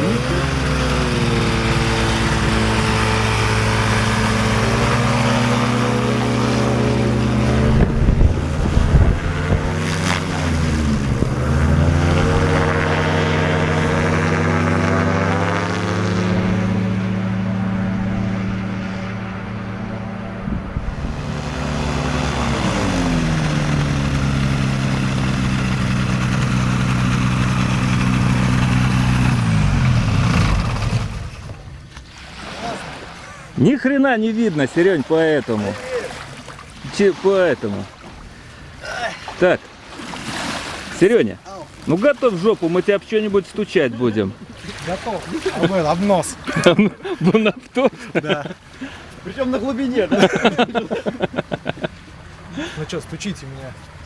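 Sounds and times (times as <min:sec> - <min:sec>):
propeller aircraft engine running: 0:00.0 - 0:32.0.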